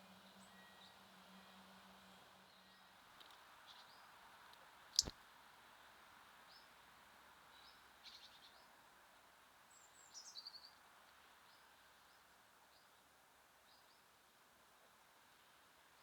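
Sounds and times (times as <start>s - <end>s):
soft outdoor hiss: 0.0s - 16.0s
small songbirds chirping: 3.6s - 4.2s, 7.5s - 8.8s, 9.7s - 14.1s.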